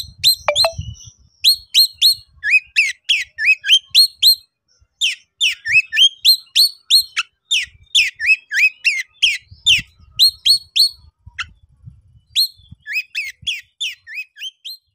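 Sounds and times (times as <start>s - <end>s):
bird singing sharp whistled notes: 0.2s - 1.6s.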